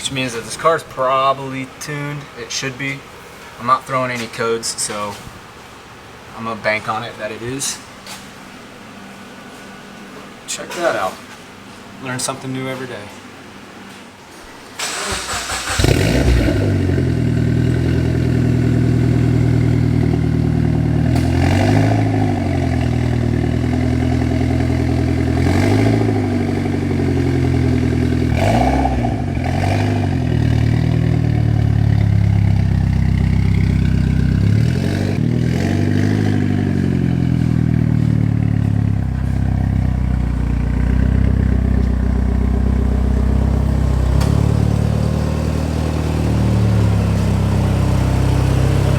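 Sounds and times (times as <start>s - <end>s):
car engine idling and revving: 14.8s - 48.9s.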